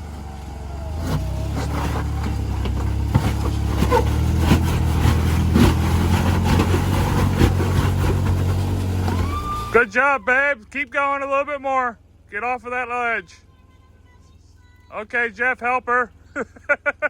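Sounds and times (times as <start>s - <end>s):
engine running under load: 0.0s - 11.3s
sharp knocks and clatters: 1.1s - 9.2s.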